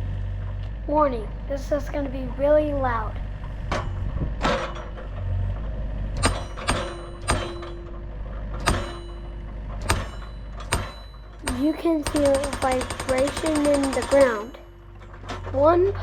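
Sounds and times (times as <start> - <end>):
excavator engine running: 0.0 - 16.0
post driver striking fence post: 6.2 - 7.9, 8.6 - 14.6.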